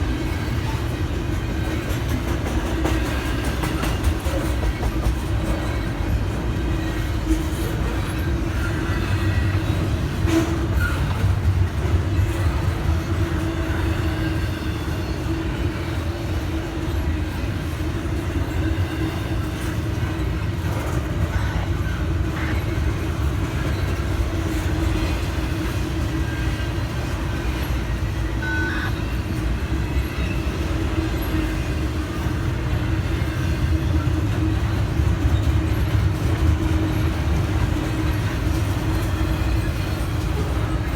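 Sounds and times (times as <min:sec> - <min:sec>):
train wheels on rails: 0:00.0 - 0:40.9.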